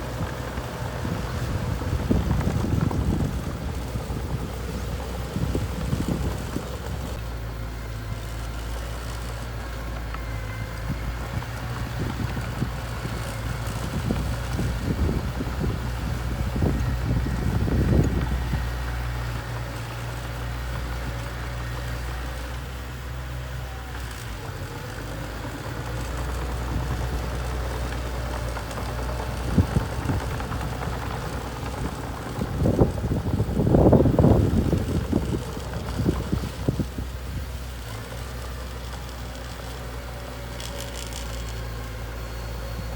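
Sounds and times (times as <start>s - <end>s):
wind buffeting microphone: 0.0s - 7.2s, 10.8s - 22.2s, 25.4s - 38.0s
bulldozer diesel engine droning: 0.0s - 42.9s.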